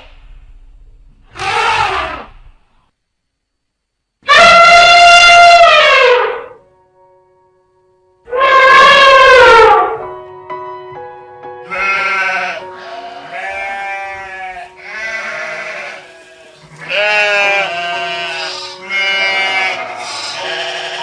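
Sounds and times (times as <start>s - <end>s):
animal bleating: 1.3s - 2.5s, 4.2s - 6.6s, 8.3s - 9.8s, 11.6s - 21.0s
background music: 5.8s - 21.0s.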